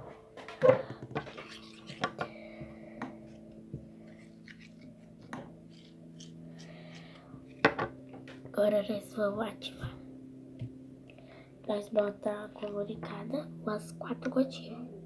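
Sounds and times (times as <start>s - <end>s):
utensil scraping a container: 1.2s - 2.4s, 4.1s - 7.2s.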